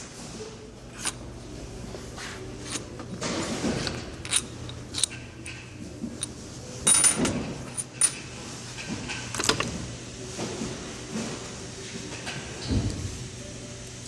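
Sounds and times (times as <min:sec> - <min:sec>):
metal parts clinking: 0:00.9 - 0:01.2, 0:02.6 - 0:05.6, 0:06.2 - 0:08.2
metallic ring: 0:06.8 - 0:08.2.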